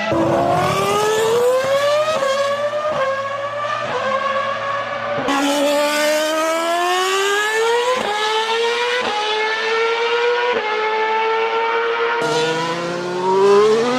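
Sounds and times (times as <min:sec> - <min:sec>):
rc car engine at high revs: 0:12.1 - 0:13.9.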